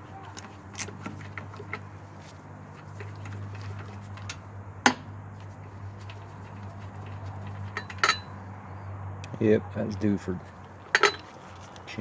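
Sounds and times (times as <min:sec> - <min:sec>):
metallic clack of hand tools: 0:07.7 - 0:08.3, 0:10.9 - 0:11.3.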